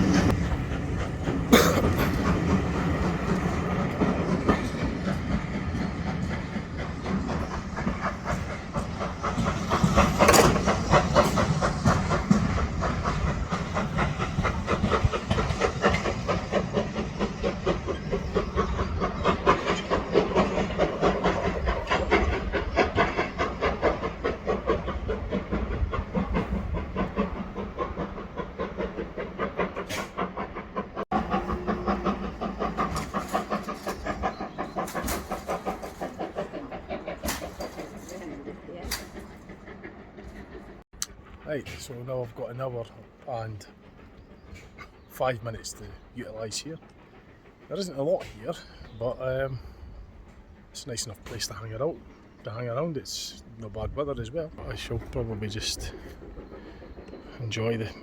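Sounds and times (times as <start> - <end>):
wheels clicking over rails: 0.0 - 41.8
steam locomotive exhaust beats: 0.0 - 58.0.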